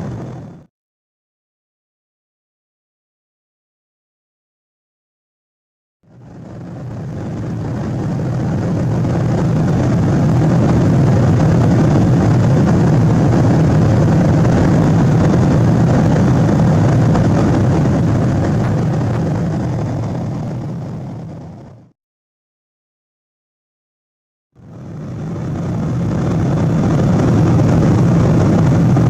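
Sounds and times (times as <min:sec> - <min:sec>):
airplane cabin rumble: 0:00.0 - 0:00.7, 0:06.1 - 0:22.0, 0:24.6 - 0:29.0.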